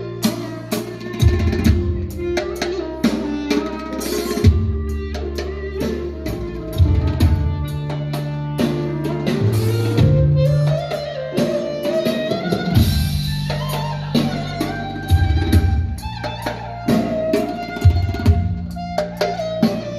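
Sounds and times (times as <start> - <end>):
drum and percussion rhythm: 0.0 - 19.9
held bass notes: 4.4 - 19.9.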